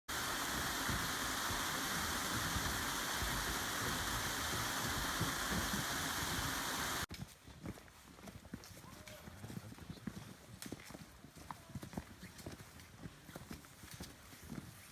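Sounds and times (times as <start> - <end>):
flowing water rushing: 0.1 - 7.1.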